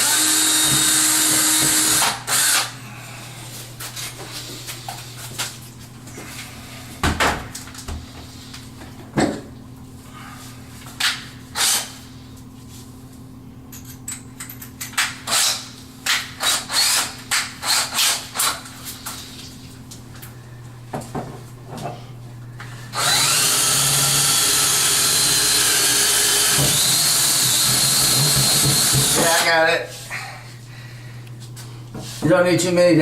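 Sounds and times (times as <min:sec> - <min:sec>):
power drill whining: 0:00.0 - 0:02.7, 0:22.9 - 0:29.5.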